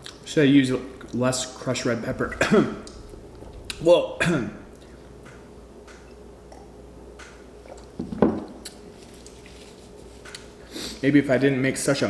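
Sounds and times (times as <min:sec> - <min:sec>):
wet chewing of food: 0:04.8 - 0:10.5.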